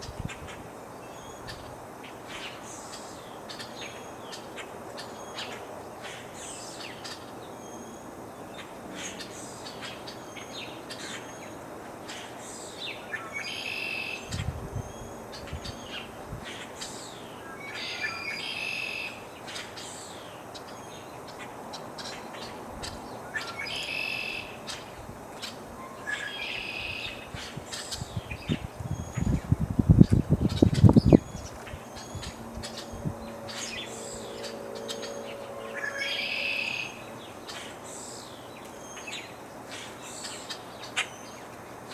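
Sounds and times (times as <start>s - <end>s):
low rumble of breeze: 0.0s - 41.9s
bird song phrase: 25.8s - 41.5s.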